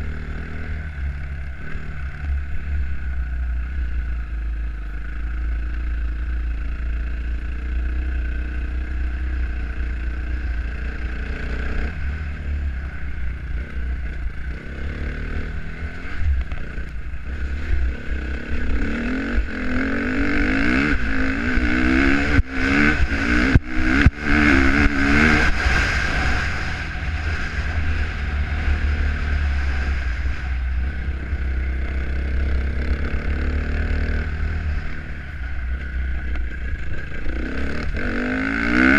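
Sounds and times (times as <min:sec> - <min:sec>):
dirt bike engine revving: 0:09.4 - 0:38.9.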